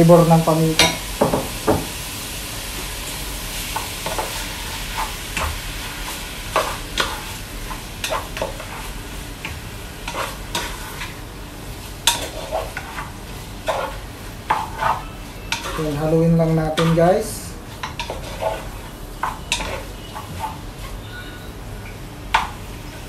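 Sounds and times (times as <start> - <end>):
meat sizzling in a pot: 0.0 - 23.0
spoon scraping a pot: 12.1 - 15.8, 17.8 - 21.6.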